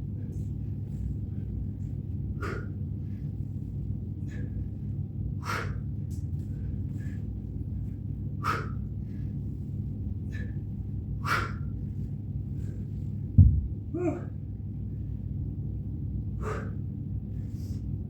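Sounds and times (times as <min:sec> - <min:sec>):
steady low rumble: 0:00.0 - 0:18.0
man breathing out hard: 0:02.3 - 0:02.8, 0:05.4 - 0:07.3, 0:08.4 - 0:09.3, 0:16.4 - 0:17.8
heavy low thud: 0:13.3 - 0:13.8
brief grunt: 0:14.0 - 0:14.3.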